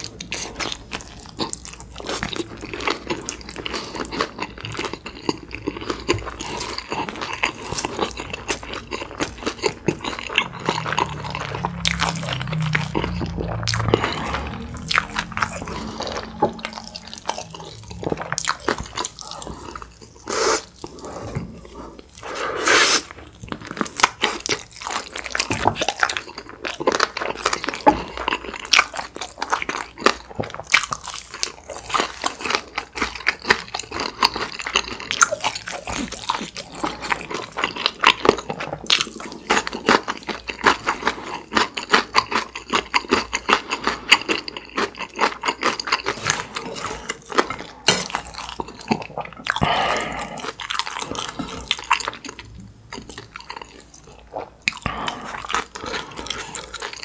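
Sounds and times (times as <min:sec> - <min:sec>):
wet chewing with crackles: 0:00.0 - 0:57.0.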